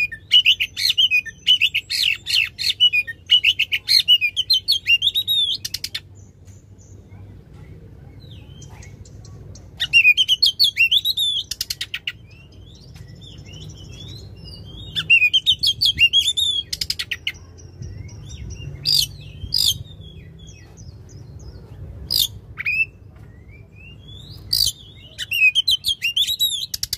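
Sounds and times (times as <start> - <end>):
bird singing whistled notes: 8.2 - 26.9.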